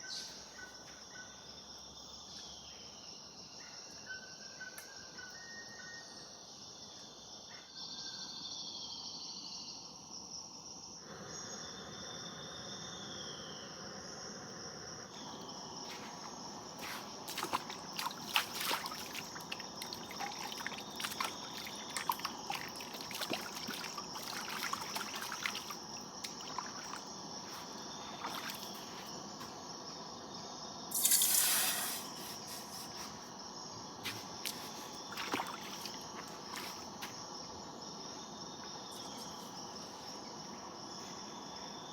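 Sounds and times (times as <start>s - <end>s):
insects calling: 0.0s - 41.9s
short loud hiss: 30.9s - 32.9s.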